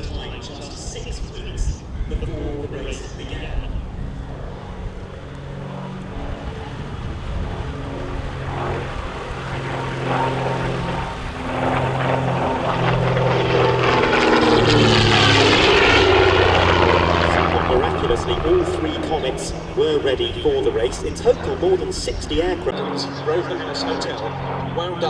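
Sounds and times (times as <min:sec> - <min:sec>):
propeller aircraft engine drone: 0:00.0 - 0:25.0.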